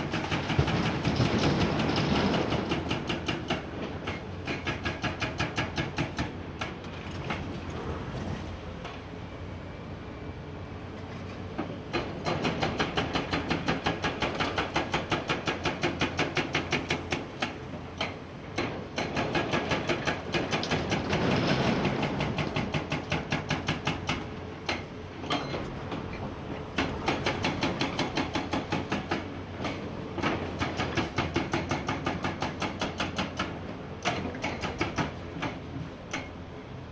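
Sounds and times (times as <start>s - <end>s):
hydraulic breaker hammering rock: 11.9s - 25.7s, 26.8s - 36.3s.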